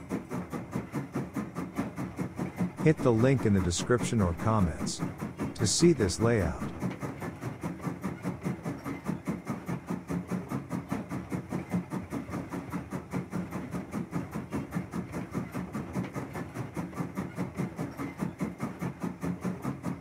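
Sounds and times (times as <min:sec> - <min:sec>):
train wheels clickety-clack: 0:00.0 - 0:20.0
low hum: 0:02.8 - 0:06.9.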